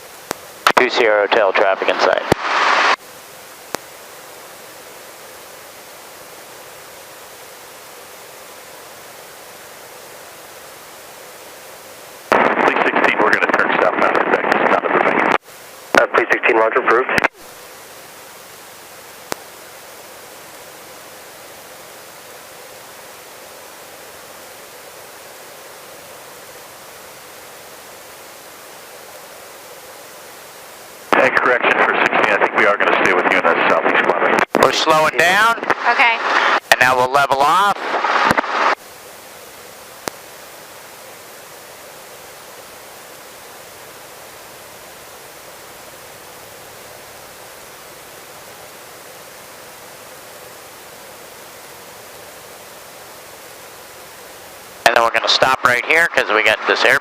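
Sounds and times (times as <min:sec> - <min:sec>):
intercom radio hiss: 0:00.2 - 0:57.0
intercom hiss: 0:00.6 - 0:03.0, 0:12.2 - 0:18.5, 0:30.6 - 0:38.8, 0:52.5 - 0:57.0.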